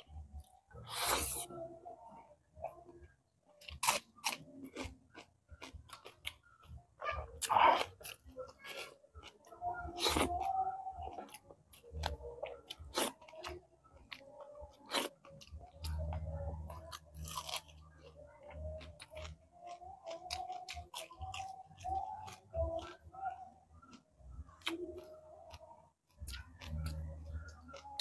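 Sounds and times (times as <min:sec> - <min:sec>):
wet chewing: 0:07.4 - 0:23.0.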